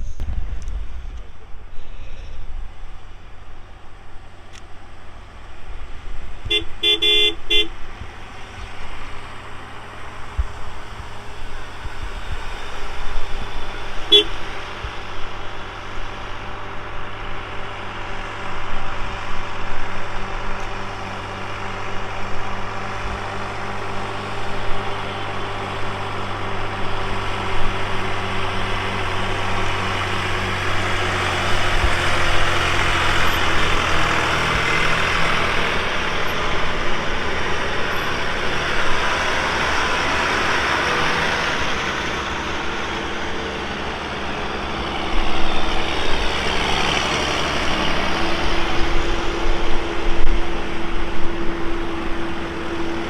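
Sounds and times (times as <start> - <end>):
tractor engines driving past: 0.0 - 53.0.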